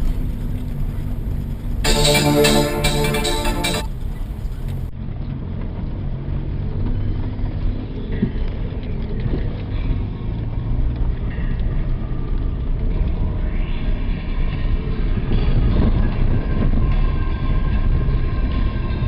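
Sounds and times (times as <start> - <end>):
vehicle engine rumble: 0.0 - 1.9.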